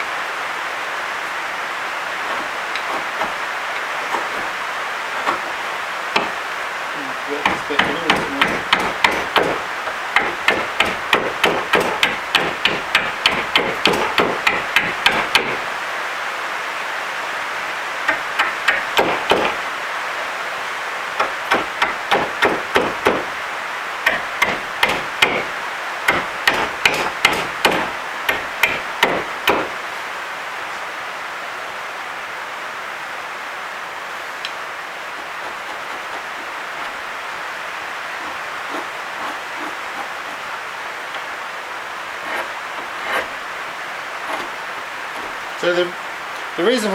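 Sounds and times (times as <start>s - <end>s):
steady hiss: 0.0s - 46.9s
hand tool knocking on hardwood: 7.4s - 9.6s.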